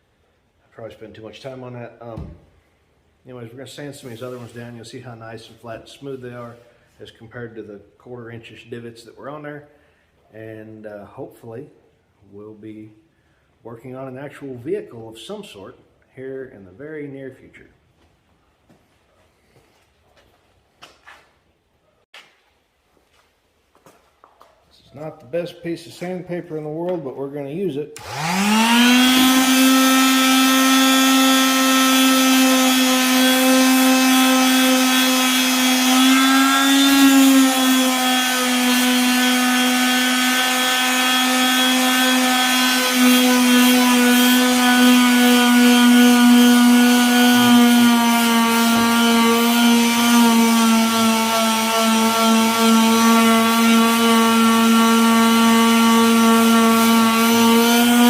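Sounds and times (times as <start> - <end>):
electric sander whining: 28.0 - 58.0.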